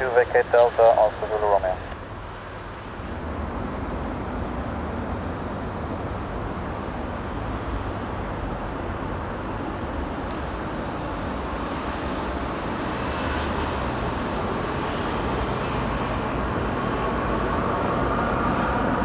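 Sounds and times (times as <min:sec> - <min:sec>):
jet airliner rumble: 0:00.0 - 0:02.0.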